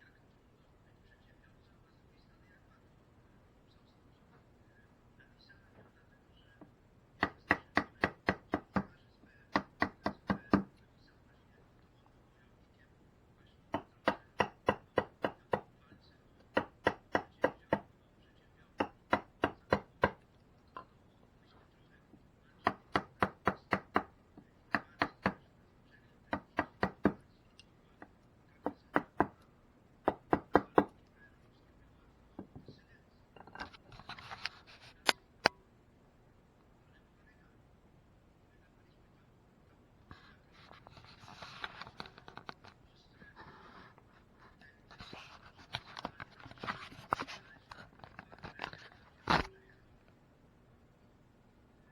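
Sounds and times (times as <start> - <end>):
mallet tapping chisel into wood: 9.5 - 10.7, 13.8 - 15.7, 16.5 - 17.8, 18.8 - 20.2, 22.6 - 24.1, 28.7 - 29.4, 30.1 - 30.9.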